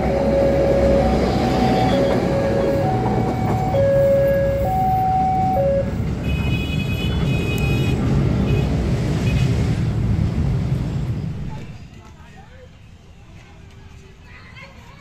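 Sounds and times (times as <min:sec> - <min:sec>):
two-tone electronic warning signal: 0:00.0 - 0:06.0
train rumbling on tracks: 0:00.0 - 0:12.0.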